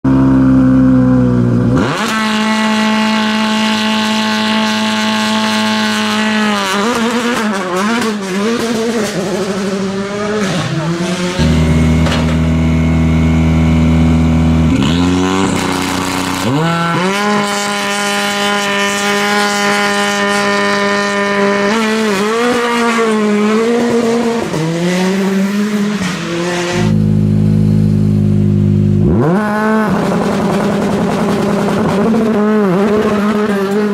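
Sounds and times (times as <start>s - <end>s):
rally car engine revving: 0.1s - 33.9s
car launching and pulling away: 8.0s - 32.1s
car engine idling: 10.6s - 14.9s, 25.4s - 29.0s.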